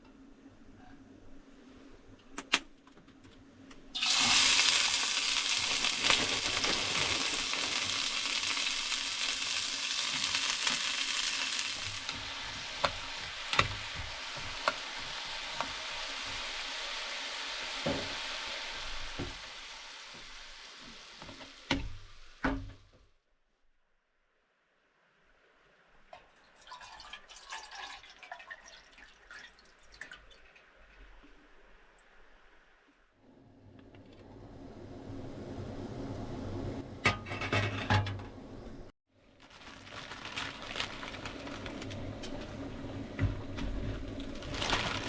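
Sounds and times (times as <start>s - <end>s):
food sizzling in a pan: 4.0s - 22.4s.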